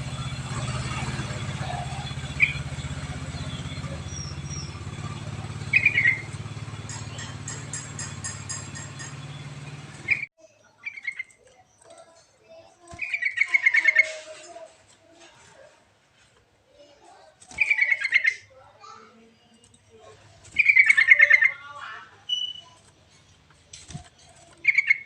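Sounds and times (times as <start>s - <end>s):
steady low hum: 0.0s - 10.3s
bird chirping: 0.0s - 14.7s, 17.5s - 18.5s, 19.4s - 25.0s.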